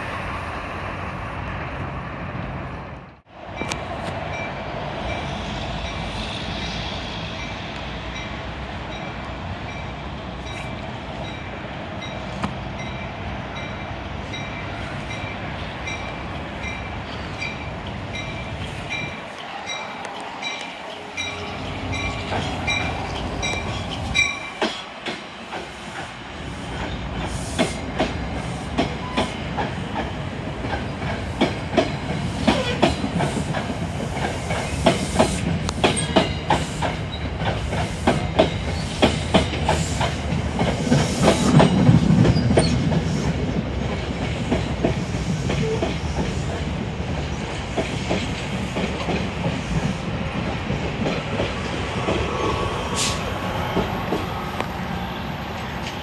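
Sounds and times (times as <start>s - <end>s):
train rumble: 0.0s - 56.0s
train wheels clicking over rail joints: 15.8s - 54.8s.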